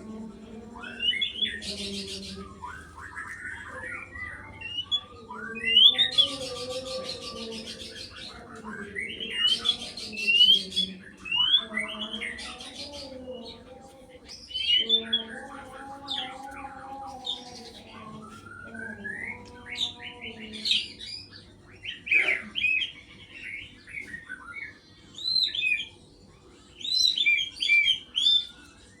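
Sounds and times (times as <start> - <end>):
bird whistled song: 0.8 - 12.8, 20.6 - 26.0, 26.8 - 29.0.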